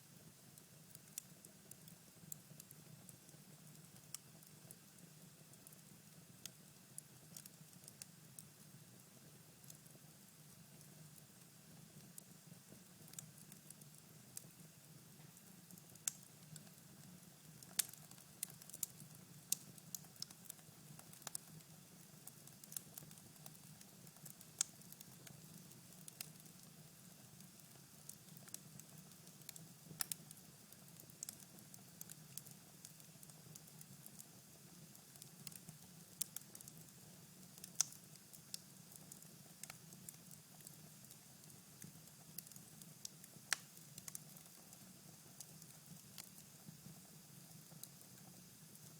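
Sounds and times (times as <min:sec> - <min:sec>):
fire crackling and popping: 0:00.9 - 0:06.6, 0:12.1 - 0:14.5, 0:15.7 - 0:26.7, 0:27.3 - 0:47.0.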